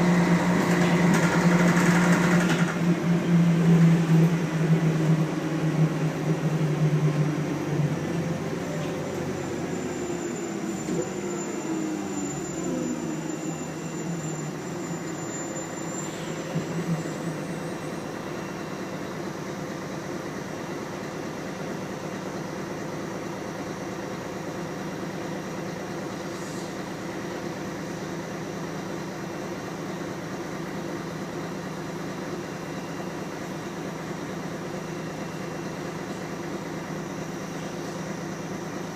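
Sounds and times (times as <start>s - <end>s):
transmission whine: 0.0s - 19.0s
bus diesel engine: 0.0s - 38.9s.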